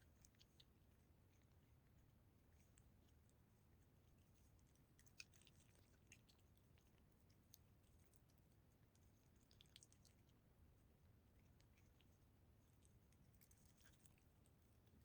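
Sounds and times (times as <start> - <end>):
low background hum: 0.0 - 15.0
cat chewing clicks: 4.7 - 10.4.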